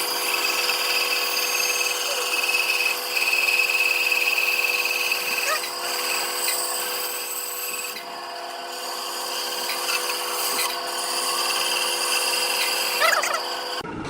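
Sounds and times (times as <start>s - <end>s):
power tool running on wood: 0.0s - 13.8s.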